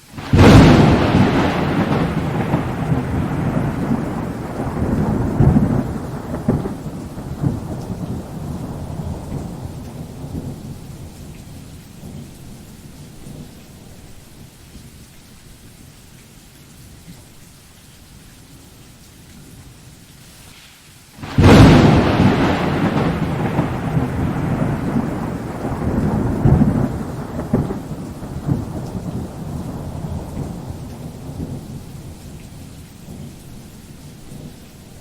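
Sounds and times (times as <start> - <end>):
rain: 0.0 - 35.0
thunder rumbling: 0.2 - 14.2, 21.2 - 35.0.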